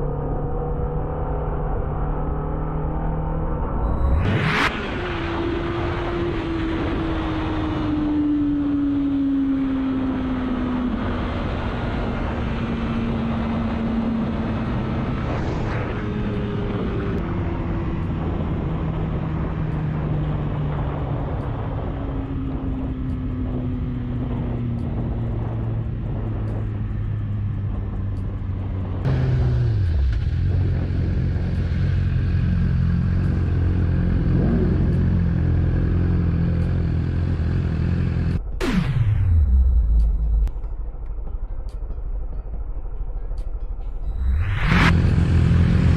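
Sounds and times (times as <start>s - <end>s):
road and wind noise: 0.0s - 45.9s
motorcycle engine running: 16.2s - 40.6s, 44.1s - 45.9s.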